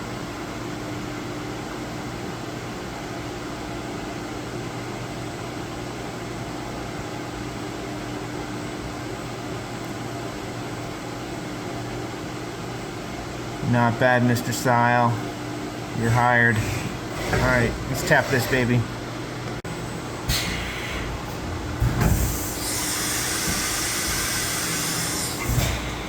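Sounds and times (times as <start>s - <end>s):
milling machine humming: 13.4s - 26.0s.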